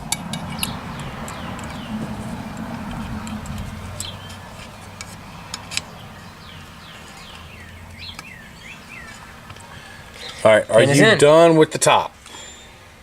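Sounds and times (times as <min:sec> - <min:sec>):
low steady hum: 0:00.0 - 0:10.2
birds chirping: 0:00.0 - 0:11.3.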